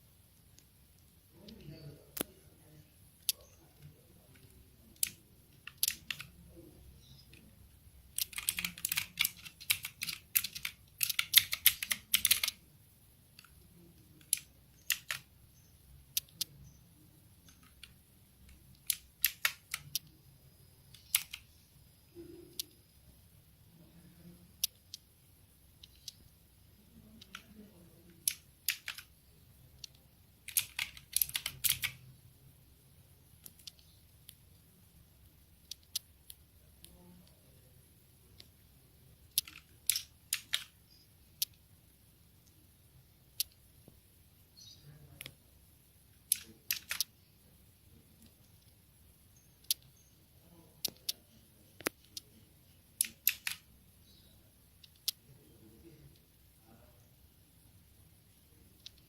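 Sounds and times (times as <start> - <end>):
mechanical keyboard clicks: 4.3 - 6.4, 8.2 - 12.6, 14.2 - 15.3, 17.4 - 20.1, 20.9 - 21.5, 27.2 - 29.1, 29.8 - 32.0, 39.3 - 40.8, 46.3 - 47.1, 53.0 - 53.7.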